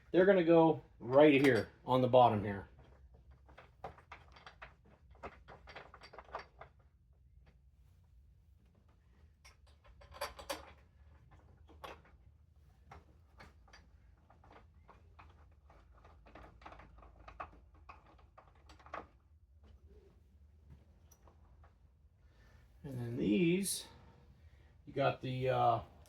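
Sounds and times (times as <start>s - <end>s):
metal bolts and tools clicking: 1.1s - 1.8s.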